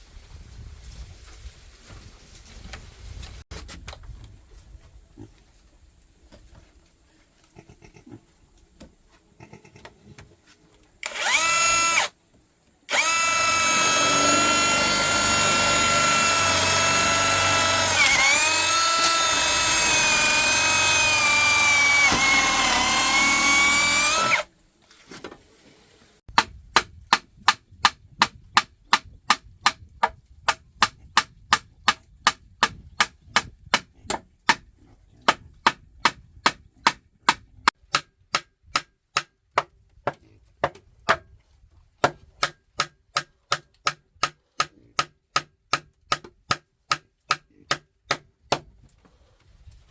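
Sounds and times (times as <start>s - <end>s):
electric drill whining: 11.0s - 12.2s, 12.9s - 24.5s.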